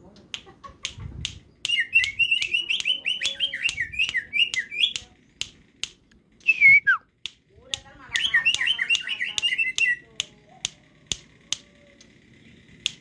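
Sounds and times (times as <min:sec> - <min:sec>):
sharp clicks: 0:00.3 - 0:06.6, 0:07.2 - 0:12.2, 0:12.8 - 0:13.0
bird singing chirping notes: 0:01.5 - 0:05.1, 0:08.1 - 0:10.1.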